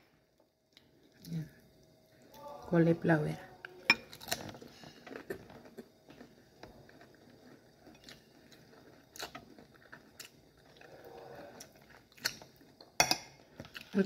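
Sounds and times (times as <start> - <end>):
faint chewing: 3.6 - 14.0.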